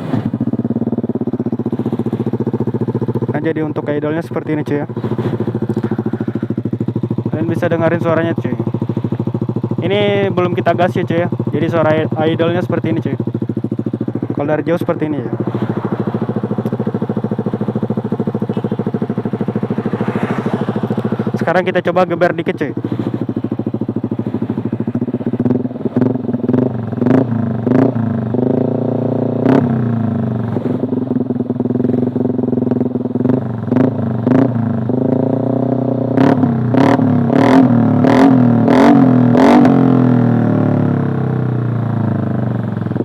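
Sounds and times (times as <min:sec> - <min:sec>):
scooter engine revving: 0:00.0 - 0:03.7, 0:04.5 - 0:43.0
exhaust cracks: 0:00.0 - 0:28.0.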